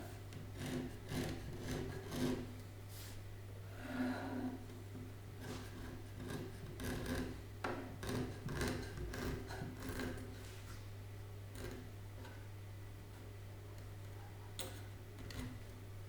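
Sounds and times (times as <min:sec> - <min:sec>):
hand tool scraping wood: 0:00.6 - 0:02.5, 0:05.4 - 0:07.4, 0:08.0 - 0:10.8.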